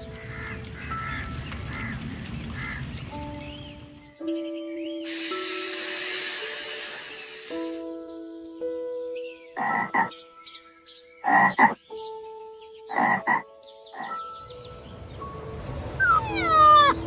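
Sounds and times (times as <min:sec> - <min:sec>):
background music held notes: 0:00.0 - 0:17.0
rough croaking calls: 0:09.6 - 0:10.2, 0:11.2 - 0:11.8, 0:12.9 - 0:14.2, 0:16.0 - 0:17.0.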